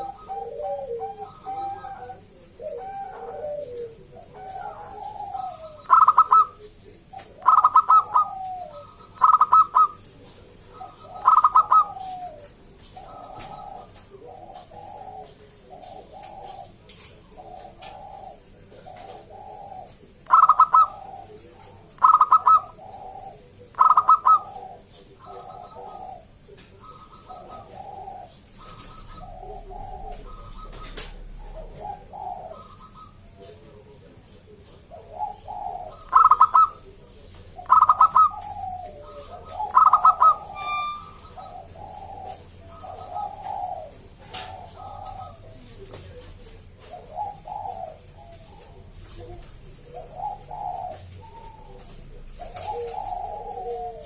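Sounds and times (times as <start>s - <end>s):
doves cooing: 0.0s - 54.0s
loud high coos: 39.7s - 41.4s.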